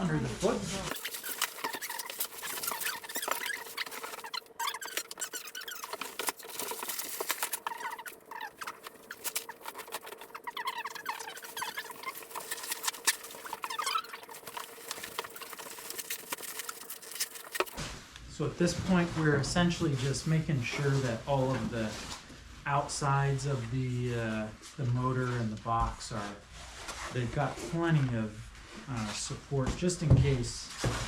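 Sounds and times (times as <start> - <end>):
packing foam squeaking on cardboard: 0.8 - 18.0
rustling: 0.8 - 18.0.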